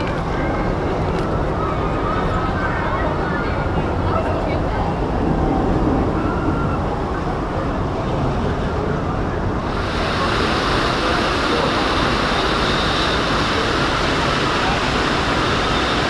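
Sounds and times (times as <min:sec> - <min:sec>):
hiss of spraying water: 0:09.6 - 0:16.0
river rapids rushing: 0:09.6 - 0:16.0.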